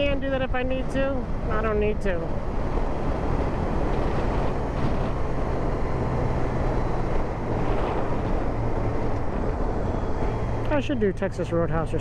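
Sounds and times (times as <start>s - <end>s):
wind noise on microphone: 0.0s - 10.7s
motorcycle engine cruising: 0.0s - 12.0s.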